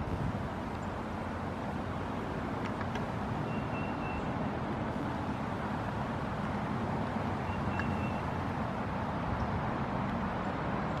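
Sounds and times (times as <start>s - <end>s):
rumbling background noise: 0.0s - 11.0s
high whistled bird notes: 3.4s - 4.3s, 7.4s - 8.4s.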